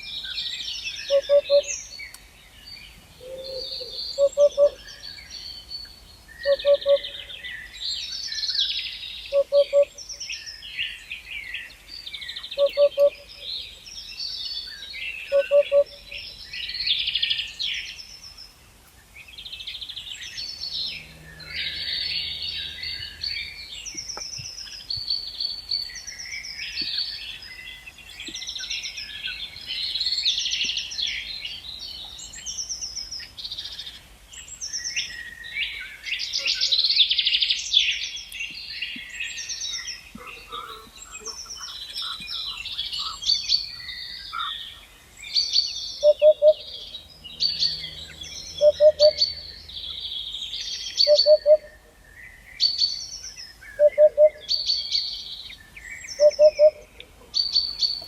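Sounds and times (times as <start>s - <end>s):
songbirds singing and chirping: 0.0s - 58.0s
low hooting bird call: 0.9s - 2.0s, 3.2s - 5.4s, 6.4s - 7.8s, 8.5s - 10.3s, 12.4s - 13.7s, 14.9s - 17.4s, 45.4s - 52.0s, 53.7s - 55.0s, 56.0s - 58.0s.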